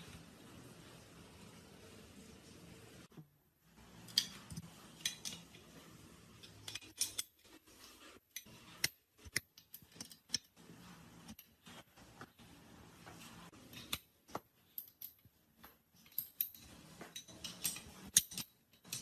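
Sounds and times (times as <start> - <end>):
metal parts clicking and clinking: 4.0 - 5.6, 6.4 - 7.6, 13.5 - 19.0.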